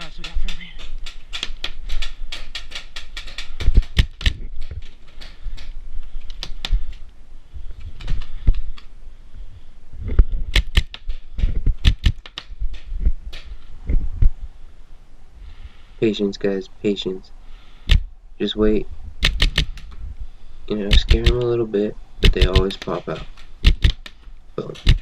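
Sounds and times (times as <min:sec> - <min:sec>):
paintball markers firing: 0:00.0 - 0:06.9, 0:10.5 - 0:11.1, 0:11.8 - 0:13.5, 0:19.2 - 0:19.8, 0:20.9 - 0:21.6, 0:22.2 - 0:25.0.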